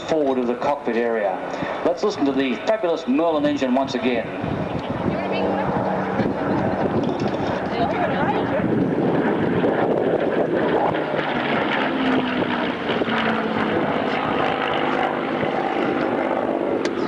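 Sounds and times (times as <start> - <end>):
propeller plane engine drone: 0.0 - 17.0.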